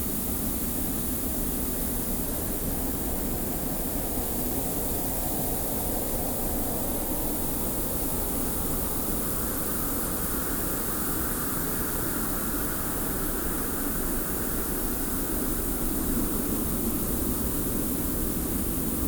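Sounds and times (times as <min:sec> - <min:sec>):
wind: 0:00.0 - 0:19.0.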